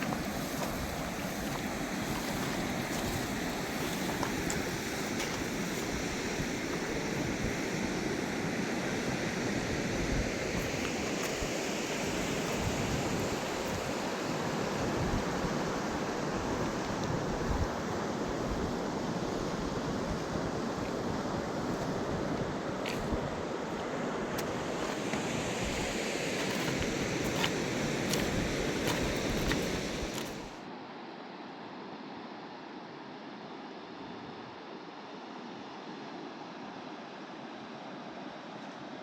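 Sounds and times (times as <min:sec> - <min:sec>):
river rushing: 0:00.0 - 0:30.8.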